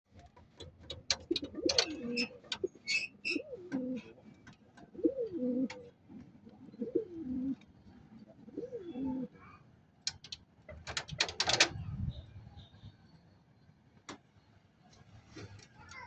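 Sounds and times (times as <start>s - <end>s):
pigeons cooing: 0.6s - 9.5s
sharp clicks and taps: 10.0s - 11.7s.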